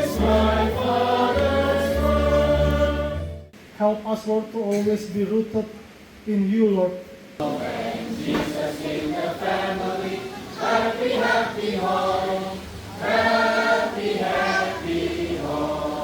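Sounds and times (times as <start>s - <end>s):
congregation singing a hymn: 0.0s - 3.4s, 7.4s - 16.0s.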